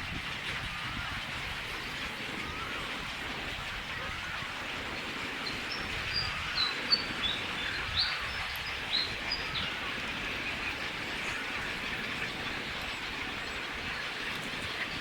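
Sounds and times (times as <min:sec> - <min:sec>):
outdoor background hiss: 0:00.0 - 0:15.0
bird chirping: 0:05.4 - 0:13.7.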